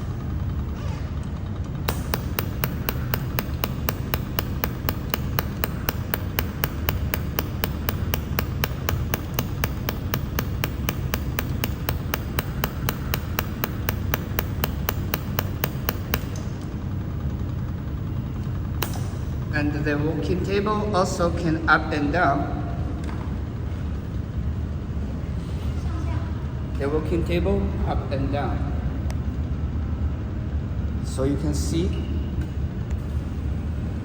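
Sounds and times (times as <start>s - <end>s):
laser welder clicking: 1.9s - 16.7s.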